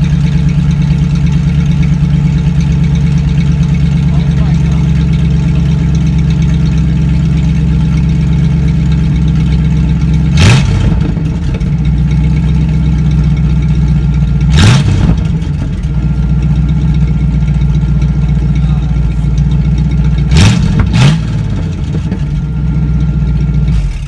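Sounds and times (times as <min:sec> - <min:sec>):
truck engine idling and revving: 0:00.0 - 0:24.0.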